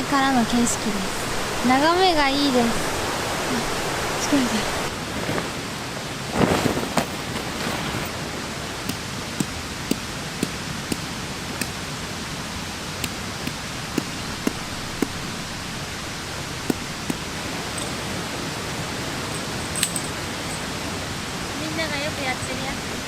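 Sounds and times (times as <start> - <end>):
rain hiss: 0.0 - 23.0
heavy drops tapping: 13.0 - 18.0.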